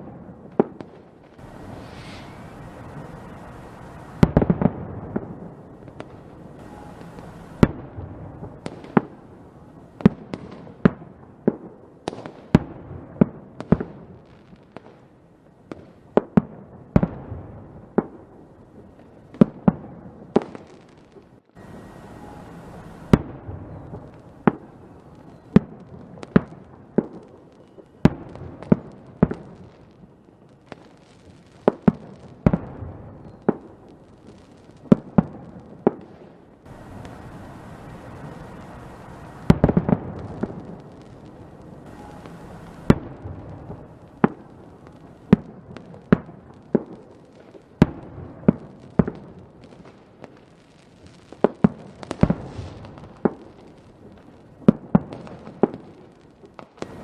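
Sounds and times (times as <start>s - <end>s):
fireworks bangs and cracks: 0.0s - 57.0s
continuous rumble: 21.6s - 24.4s, 36.7s - 45.3s.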